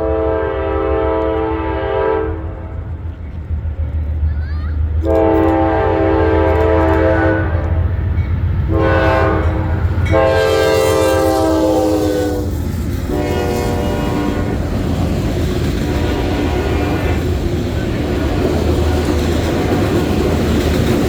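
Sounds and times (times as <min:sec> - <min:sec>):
locomotive air horn blasts: 0:00.0 - 0:02.8, 0:05.0 - 0:07.9, 0:08.7 - 0:14.7, 0:15.8 - 0:17.3
train rumble: 0:00.0 - 0:21.0.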